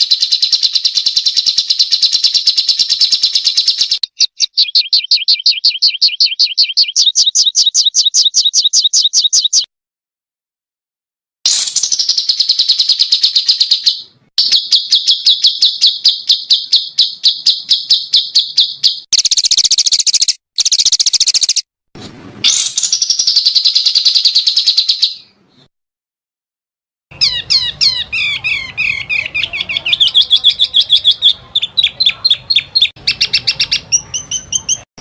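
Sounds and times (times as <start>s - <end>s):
songbird rapid trills: 0.0s - 9.6s, 11.5s - 21.6s.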